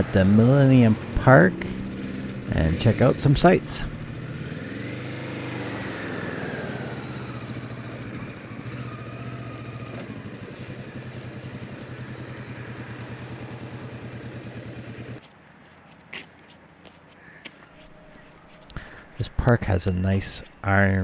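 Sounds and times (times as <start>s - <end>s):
motorcycle engine idling: 0.0s - 4.5s.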